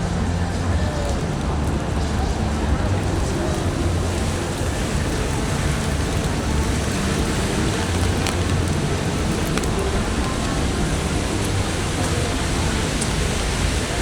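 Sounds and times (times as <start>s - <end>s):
heavy rain: 0.0s - 14.0s.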